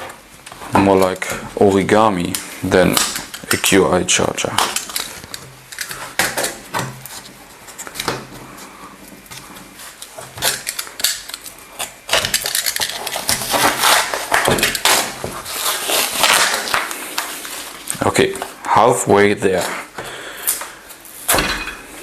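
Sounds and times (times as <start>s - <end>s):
paper tearing and scraping: 12.8s - 17.7s.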